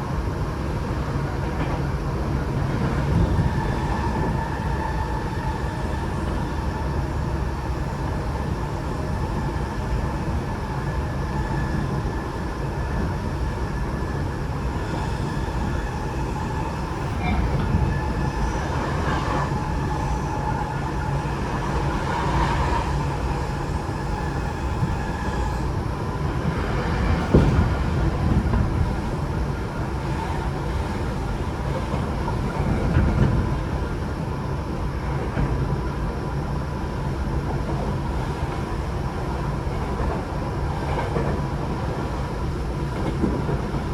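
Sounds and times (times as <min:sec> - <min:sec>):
train wheels rumbling on rail: 0:00.0 - 0:43.9
train whine: 0:00.0 - 0:43.9
train knocks: 0:14.7 - 0:33.9, 0:39.8 - 0:43.9.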